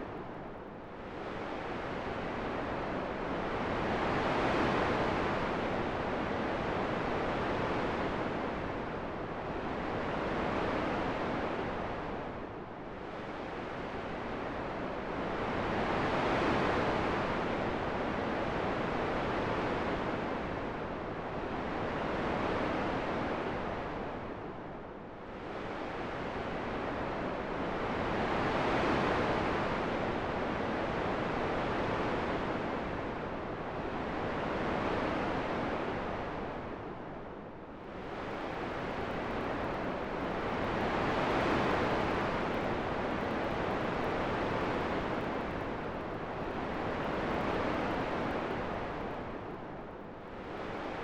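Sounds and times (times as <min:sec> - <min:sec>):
rushing wind in gusts: 0:25.4 - 0:51.0.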